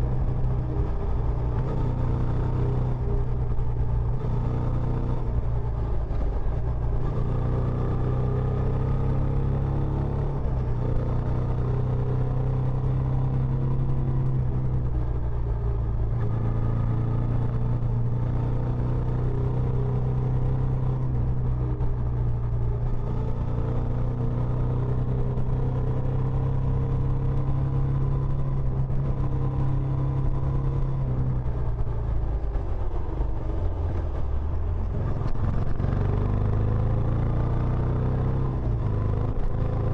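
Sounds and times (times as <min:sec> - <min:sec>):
motorcycle engine rumbling: 0:27.2 - 0:36.6.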